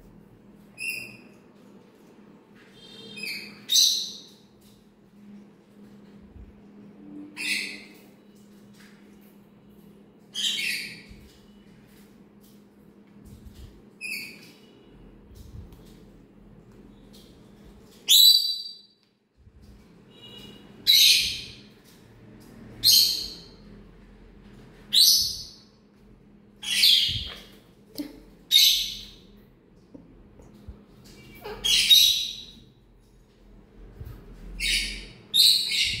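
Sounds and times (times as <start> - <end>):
parrot screeching: 31.4 - 32.2.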